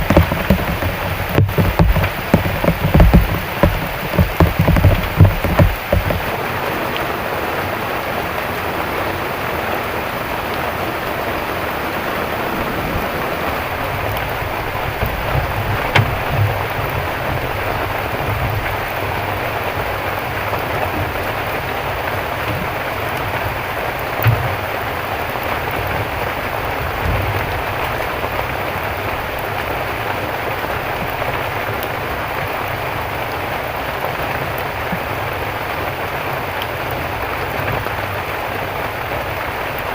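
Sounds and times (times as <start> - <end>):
low thumps: 0.0 - 6.3, 13.5 - 23.6
heavy rain falling: 0.0 - 39.9.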